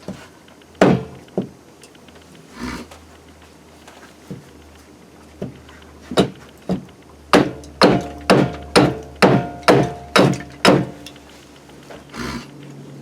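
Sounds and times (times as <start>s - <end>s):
hard striking blows with ringing: 7.3s - 11.2s.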